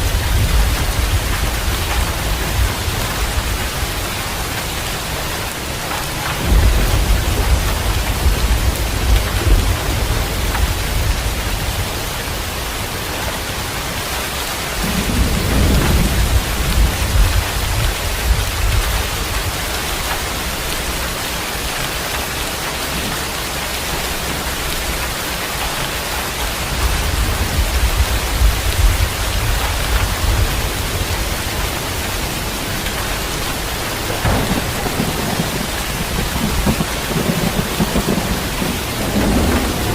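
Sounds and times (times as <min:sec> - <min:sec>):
heavy rain: 0:00.0 - 0:39.9
low thunder rolls: 0:06.2 - 0:12.6, 0:14.8 - 0:21.1, 0:26.6 - 0:39.9.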